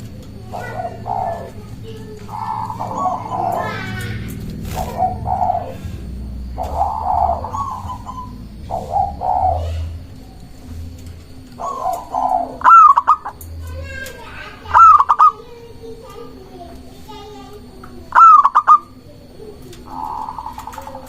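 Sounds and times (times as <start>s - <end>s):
dove cooing: 0.0s - 21.0s
sharp high-pitched bird calls: 0.4s - 5.9s, 6.5s - 10.8s, 11.6s - 15.5s, 18.1s - 19.0s, 19.8s - 21.0s.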